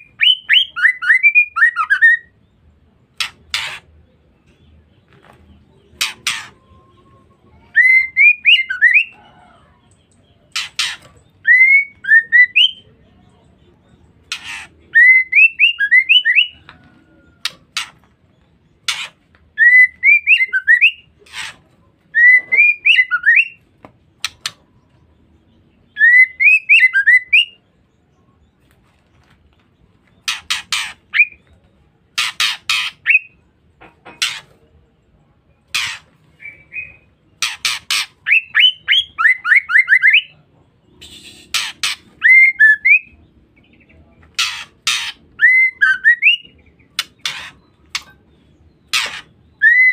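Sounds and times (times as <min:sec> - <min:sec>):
bird harsh rasping calls: 0:03.1 - 0:04.1, 0:05.8 - 0:07.1, 0:10.4 - 0:12.8, 0:14.2 - 0:18.1, 0:18.8 - 0:23.6, 0:30.2 - 0:31.4, 0:32.1 - 0:33.4, 0:34.1 - 0:34.6, 0:35.7 - 0:40.3, 0:40.9 - 0:49.9
bird whistled calls: 0:41.0 - 0:43.2, 0:44.4 - 0:46.6, 0:48.9 - 0:49.9.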